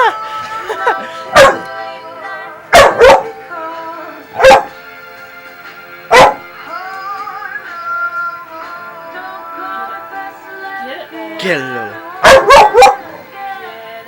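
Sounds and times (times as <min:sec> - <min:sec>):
dog barking: 0:01.4 - 0:01.7, 0:02.7 - 0:03.4, 0:04.4 - 0:04.8, 0:06.1 - 0:06.4, 0:12.2 - 0:13.1.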